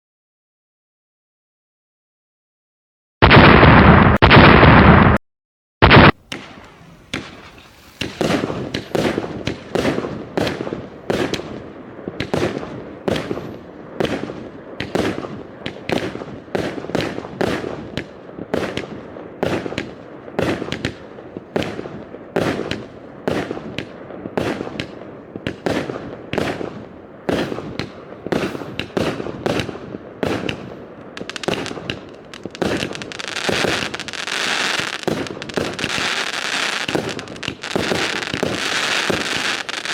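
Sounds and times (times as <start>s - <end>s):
firework bangs: 3.2s - 5.2s, 5.8s - 39.9s
firework crackling hiss: 5.9s - 11.6s, 27.3s - 39.9s.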